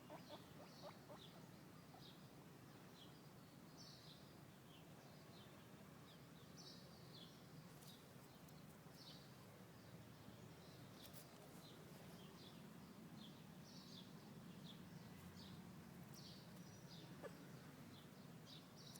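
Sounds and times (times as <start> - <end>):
guinea pigs squeaking: 0.1 - 1.4.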